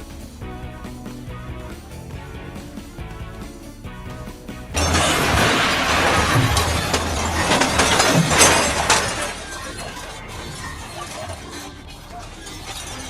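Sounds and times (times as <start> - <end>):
lightning crack: 4.8 - 9.2.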